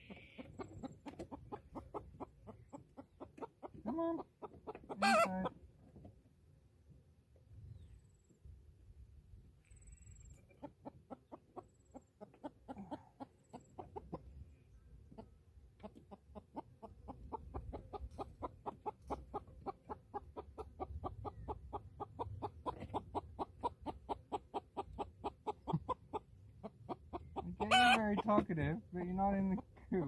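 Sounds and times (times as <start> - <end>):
hen clucking: 0.0 - 6.0, 10.1 - 30.0.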